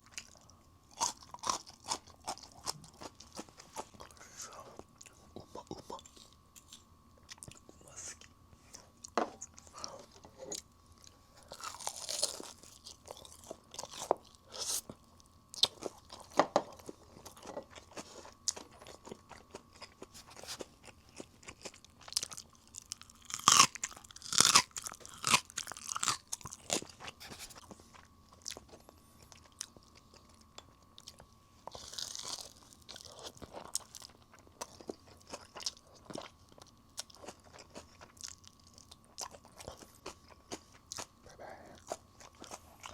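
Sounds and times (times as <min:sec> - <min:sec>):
crispy batter crunching: 0:09.0 - 0:42.9.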